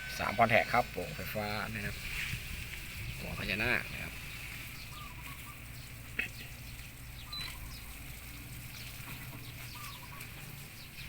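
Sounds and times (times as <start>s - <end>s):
faint bird chirps: 3.9s - 11.0s.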